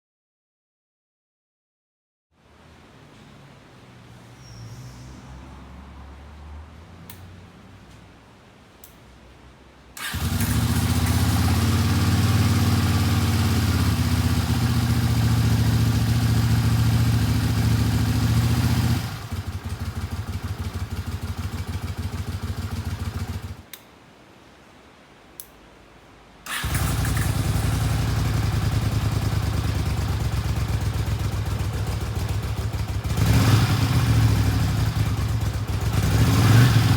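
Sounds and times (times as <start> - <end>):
motorcycle engine running: 10.0 - 23.6, 26.5 - 36.9.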